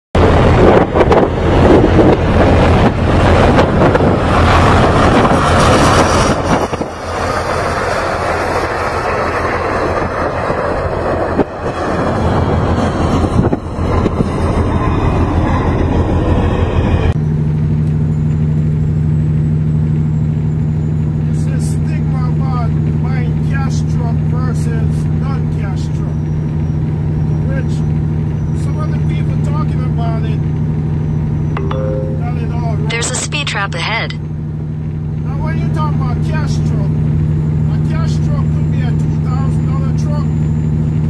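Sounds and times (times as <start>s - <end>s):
road and wind noise: 0.2s - 31.6s
vehicle engine drone: 0.2s - 41.0s.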